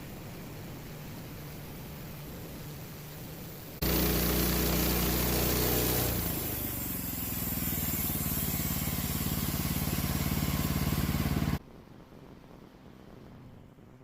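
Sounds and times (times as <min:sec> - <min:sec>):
sawmill engine running: 0:03.8 - 0:11.6.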